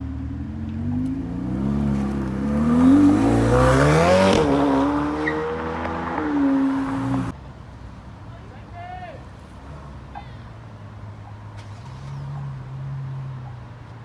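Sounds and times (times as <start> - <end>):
car engine accelerating hard: 0.0 - 7.4.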